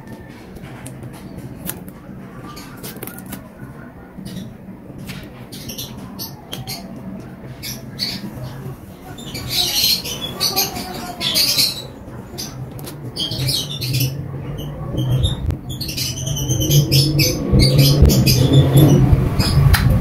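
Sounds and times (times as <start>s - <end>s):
small bird chirping and squawking: 7.5s - 19.5s.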